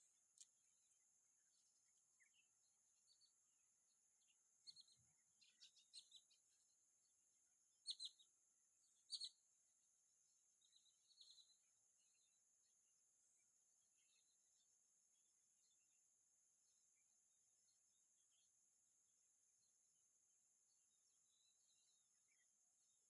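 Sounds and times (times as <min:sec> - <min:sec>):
high bird chirps: 0:07.8 - 0:08.2, 0:09.0 - 0:09.4.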